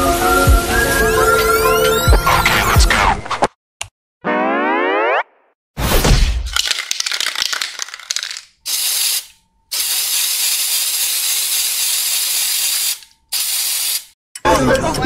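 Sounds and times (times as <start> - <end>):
spray can rattling: 6.5 - 14.2
spray can hissing: 6.7 - 14.2.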